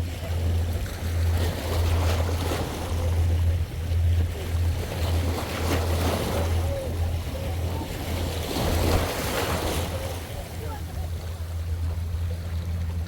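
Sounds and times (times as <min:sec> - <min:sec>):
sea waves washing on shore: 0:00.0 - 0:13.0.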